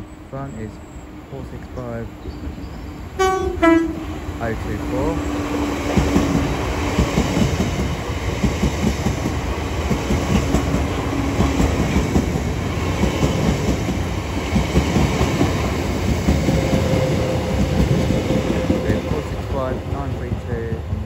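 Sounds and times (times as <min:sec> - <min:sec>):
train wheels clattering over rails: 0:04.4 - 0:21.0.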